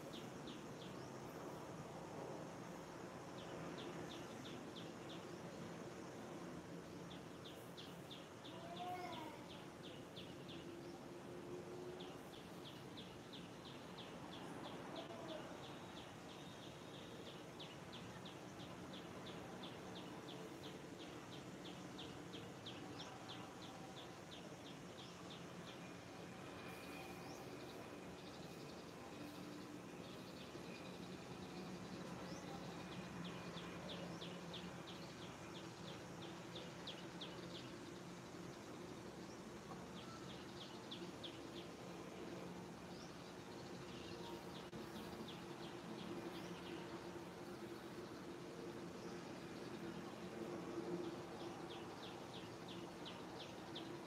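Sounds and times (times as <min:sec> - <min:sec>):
faint outdoor background: 0:00.0 - 0:54.0.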